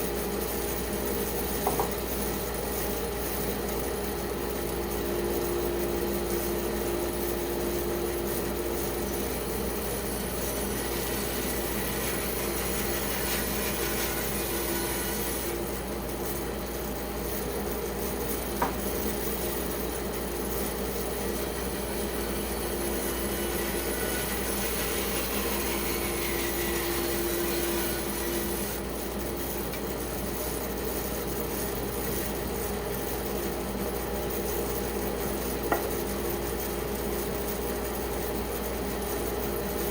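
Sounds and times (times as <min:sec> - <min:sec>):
band saw cutting wood: 0:10.0 - 0:15.6, 0:21.6 - 0:28.9.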